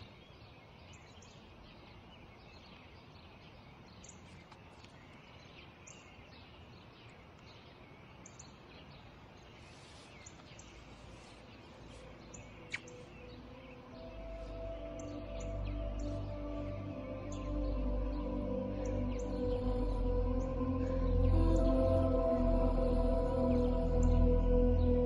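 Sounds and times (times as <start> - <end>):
small birds chirping: 0.0 - 25.0
soft music: 10.8 - 25.0.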